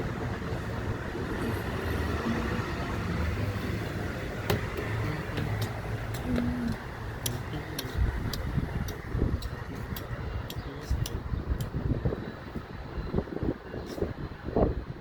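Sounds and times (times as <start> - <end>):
train rumbling: 0.0 - 11.7
sharp clicks: 4.5 - 11.8.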